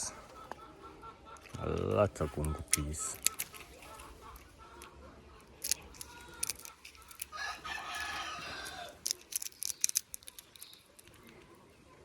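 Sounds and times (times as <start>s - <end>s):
sharp clicks and rustles: 1.4s - 11.6s
rooster crowing: 7.3s - 9.0s.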